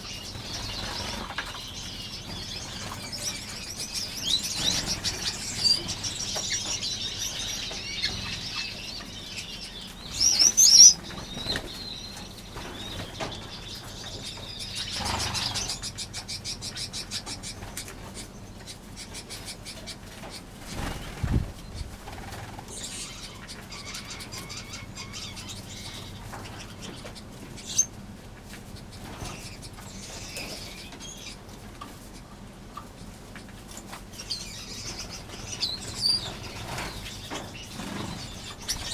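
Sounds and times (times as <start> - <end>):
wings fluttering: 0.0 - 16.1, 20.2 - 27.6, 33.3 - 38.9
finches chirping and calling: 0.0 - 28.0, 28.7 - 31.5, 33.4 - 38.9.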